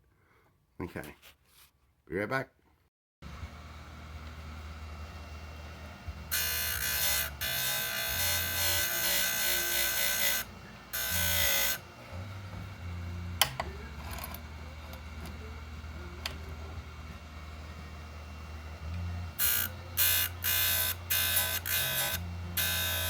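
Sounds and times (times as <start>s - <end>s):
grinder motor humming: 3.2s - 23.0s
high-pitched grinding: 4.7s - 23.0s.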